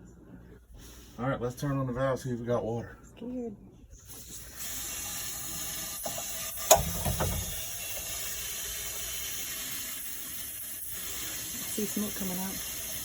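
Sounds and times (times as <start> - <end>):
valve hissing: 4.2 - 13.0
sharp knock in plumbing: 6.0 - 8.1.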